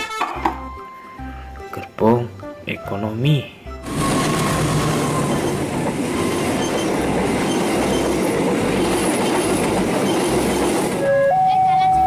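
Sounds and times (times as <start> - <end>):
train wheels rumbling on rails: 3.8 - 12.0.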